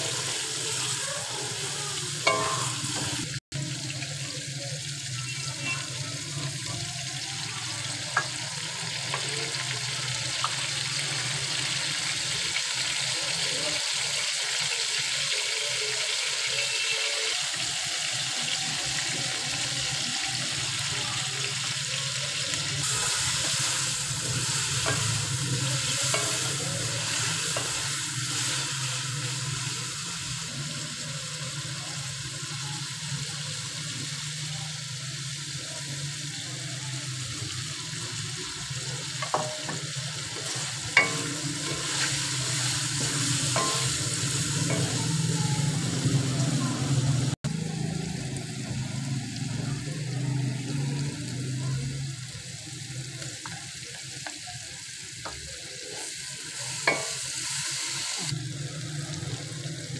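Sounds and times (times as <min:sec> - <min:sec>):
chicken frying in oil: 0:00.0 - 0:59.9
wooden spatula scraping wok: 0:39.2 - 0:45.9.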